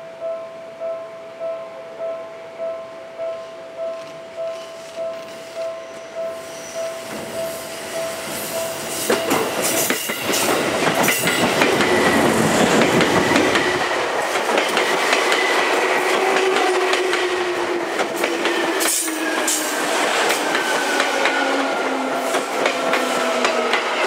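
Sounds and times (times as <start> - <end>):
train running noise: 3.2 - 24.0
wheels clacking over rail joints: 9.0 - 17.3.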